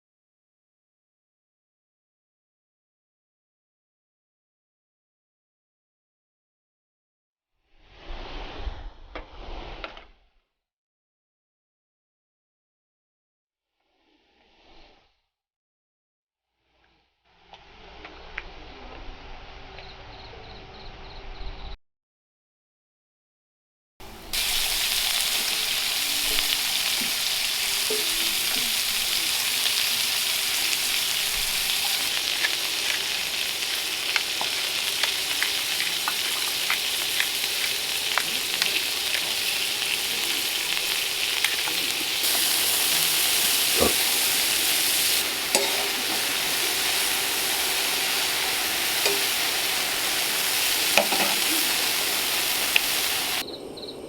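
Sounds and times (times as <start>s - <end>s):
burger patties sizzling: 24.1s - 53.4s
fat popping and crackling: 31.2s - 51.6s.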